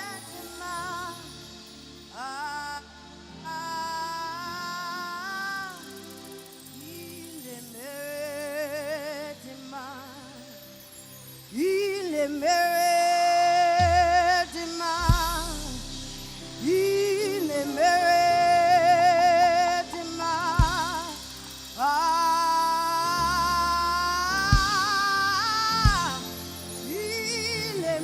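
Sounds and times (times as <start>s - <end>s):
person singing gospel: 0.0s - 28.0s
keyboard and bass accompaniment: 13.8s - 28.0s
sharp low hits: 15.0s - 16.7s.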